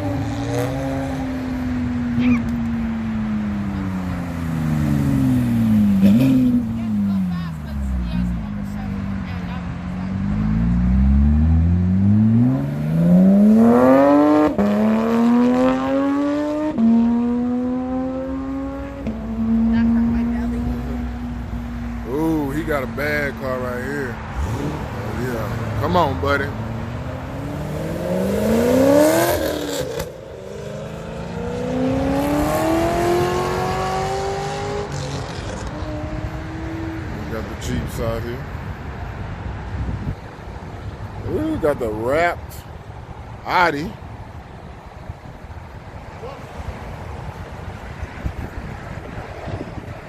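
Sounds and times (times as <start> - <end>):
car accelerating hard: 10.0 - 38.2.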